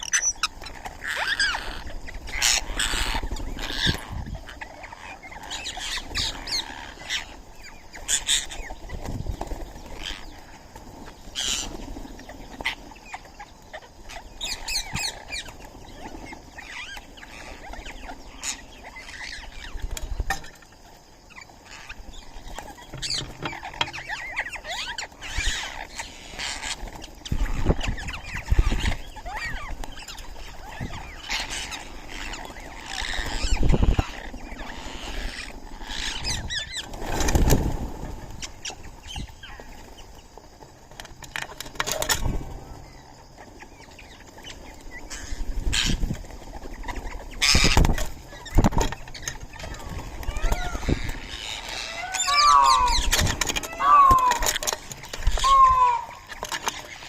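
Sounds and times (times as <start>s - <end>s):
birds chirping: 0.0s - 57.0s
loud noises: 52.0s - 54.7s, 55.3s - 56.3s.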